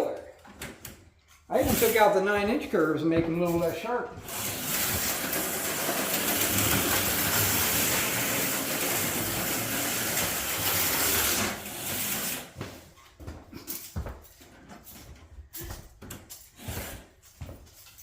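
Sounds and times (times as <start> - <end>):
slot cars whirring: 4.2 - 12.4.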